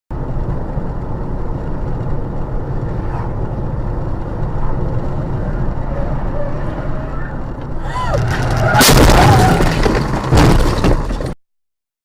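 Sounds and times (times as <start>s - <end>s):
car driving road noise: 0.1s - 11.4s.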